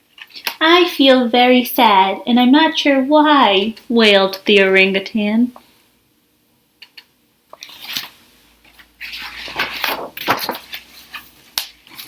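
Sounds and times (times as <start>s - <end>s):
book pages being turned: 7.5s - 12.0s.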